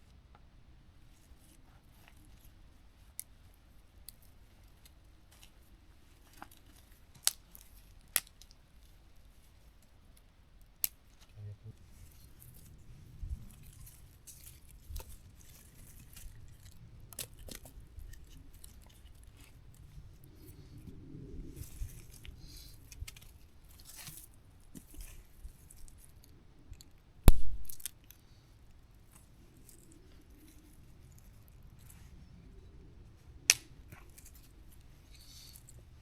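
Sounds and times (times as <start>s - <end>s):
camp gear clicks and scrapes: 11.0s - 20.8s, 21.6s - 27.0s, 33.6s - 36.0s
loud sharp wood crack: 27.2s - 28.0s, 33.5s - 34.0s.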